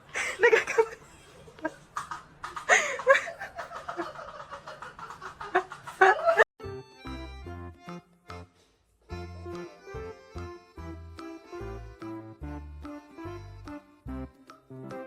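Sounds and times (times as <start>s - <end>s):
person laughing and snickering: 0.2s - 6.4s
music: 6.6s - 15.0s.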